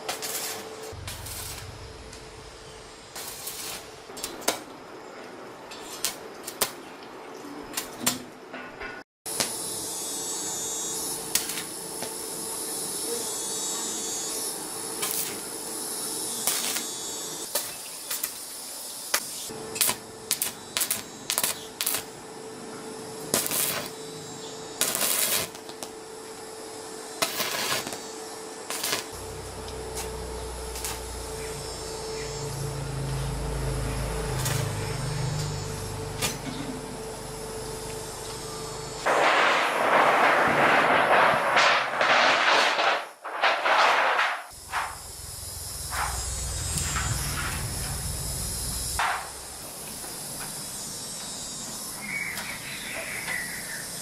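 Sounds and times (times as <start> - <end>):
faint hum: 0.0 - 5.8, 18.6 - 42.1, 44.6 - 54.0
low engine rumble: 1.0 - 4.2, 29.2 - 39.0, 44.6 - 50.5.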